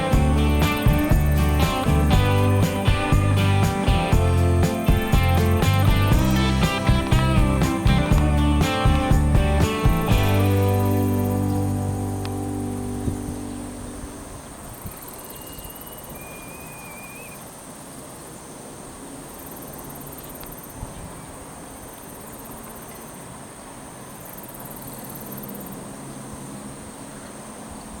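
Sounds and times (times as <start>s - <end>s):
water rushing: 0.0s - 14.6s
strong wind: 0.0s - 15.1s
insects trilling: 0.0s - 28.0s
wavering bird call: 15.1s - 17.4s.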